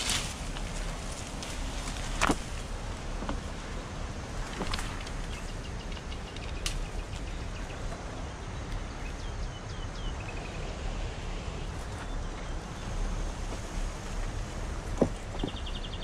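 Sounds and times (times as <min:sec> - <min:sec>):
steady low rumble: 0:00.0 - 0:16.0
small birds whistling: 0:15.2 - 0:16.0.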